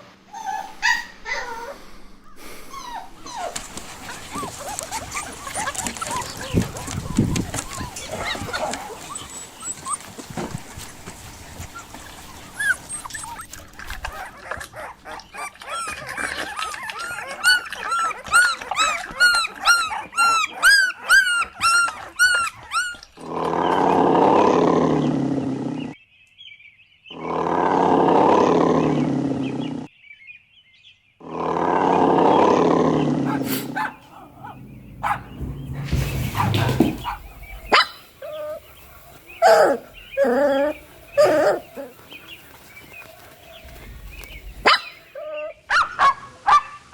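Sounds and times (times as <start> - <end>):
puppies yelping: 0.2 - 23.2, 33.2 - 46.6
puppies barking: 0.3 - 23.1, 33.2 - 46.9
long loud growls: 23.2 - 26.0, 27.2 - 29.9, 31.2 - 42.4.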